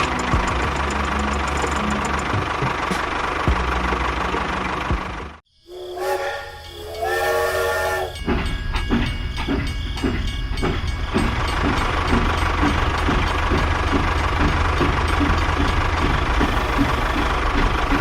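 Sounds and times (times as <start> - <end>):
two-note whistle horn: 5.7 - 8.2
regular ticking: 8.0 - 18.0.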